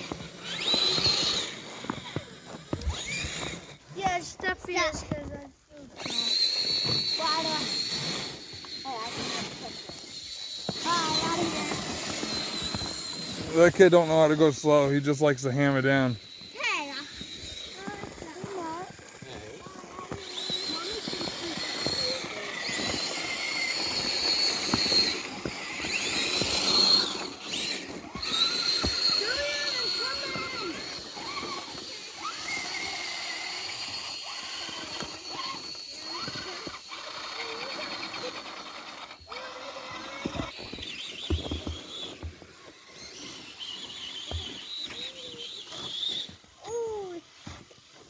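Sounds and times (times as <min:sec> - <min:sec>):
electric motor and gears whining: 0:00.0 - 0:48.0.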